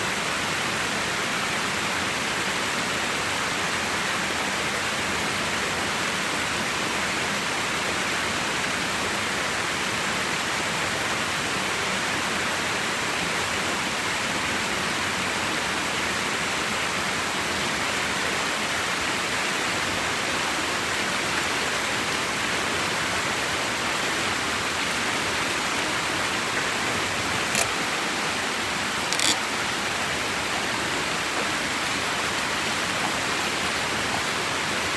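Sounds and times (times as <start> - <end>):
flowing water rushing: 0.2 - 34.9
short click: 29.1 - 29.4.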